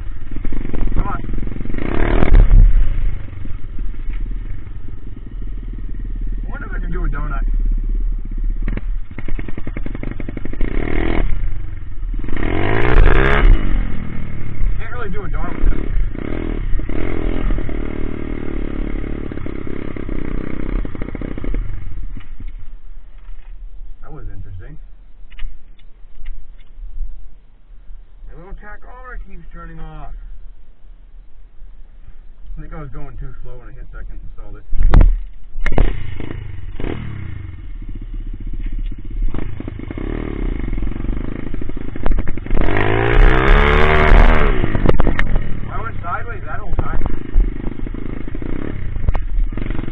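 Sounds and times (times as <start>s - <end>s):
small motorbike engine running: 0.0s - 22.6s, 34.9s - 49.9s.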